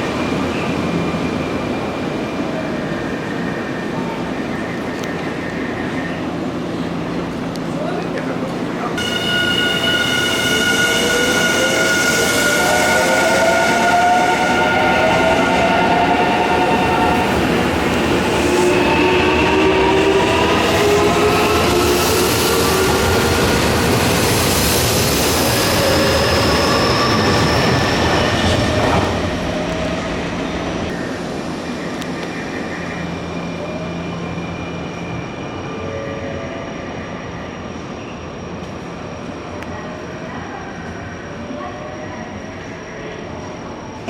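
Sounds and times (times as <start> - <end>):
train whining tones: 8.9 - 37.8.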